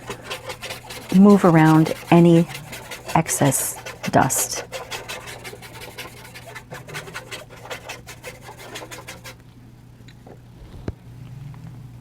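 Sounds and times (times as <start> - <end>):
paintbrush whisking over paper: 0.0 - 9.4.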